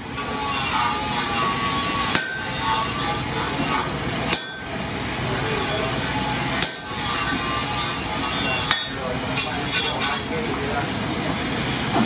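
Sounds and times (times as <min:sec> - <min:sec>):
steady background noise: 0:00.0 - 0:12.0
hammer blows on hot steel: 0:00.6 - 0:09.0.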